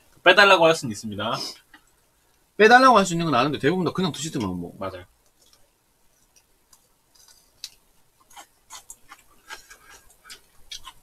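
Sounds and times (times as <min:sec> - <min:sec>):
wet chewing clicks and smacks: 0:06.2 - 0:11.0.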